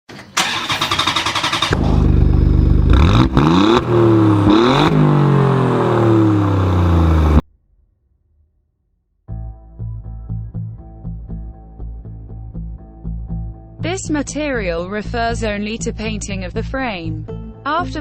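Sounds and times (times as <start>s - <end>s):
engine revving: 0.4s - 7.4s.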